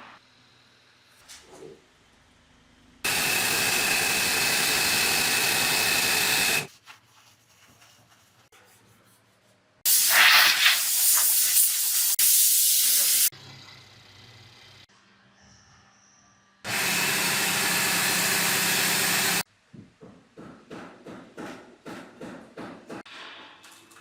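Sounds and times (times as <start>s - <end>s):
gas hissing from nozzle: 3.1s - 6.7s, 9.9s - 13.3s.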